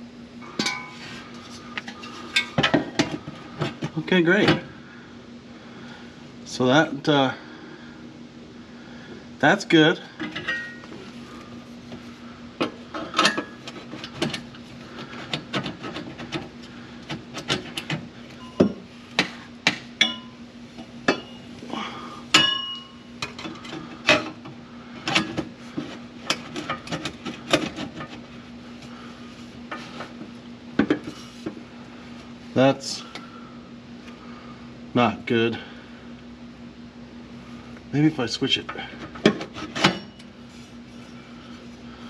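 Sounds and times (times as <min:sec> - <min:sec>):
steady low hum: 0:00.0 - 0:42.0
metal exhaust pipes clanking: 0:00.5 - 0:01.1.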